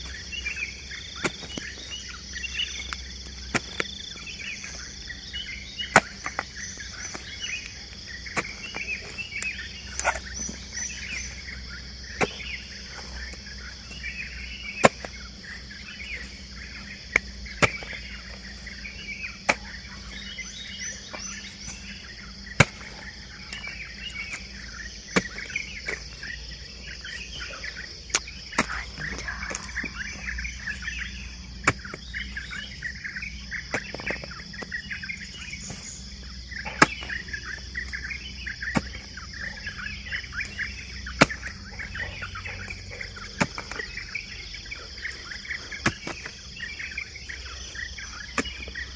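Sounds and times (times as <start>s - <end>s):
birds chirping: 0.0s - 48.9s
high insect drone: 0.0s - 48.9s
hoe chopping into soil: 1.2s - 1.9s, 2.5s - 4.8s, 5.8s - 7.6s, 8.2s - 11.3s, 12.0s - 13.3s, 13.9s - 15.6s, 16.2s - 26.2s, 28.1s - 32.7s, 33.6s - 34.9s, 35.6s - 39.5s, 40.3s - 42.1s, 43.1s - 44.0s, 45.4s - 46.4s, 48.0s - 48.9s.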